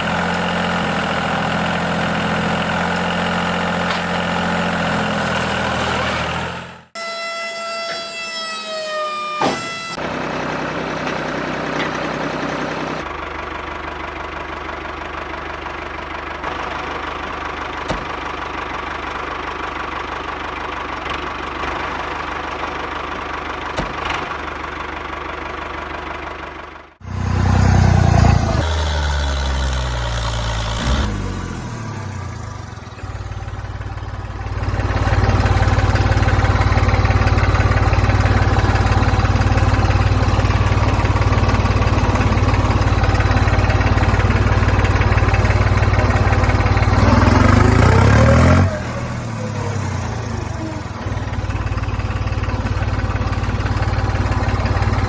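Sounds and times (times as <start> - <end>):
vehicle engine idling: 0.0 - 7.0, 10.0 - 55.0
short horn-like tone: 7.0 - 10.0
deep engine rumble: 9.9 - 55.0.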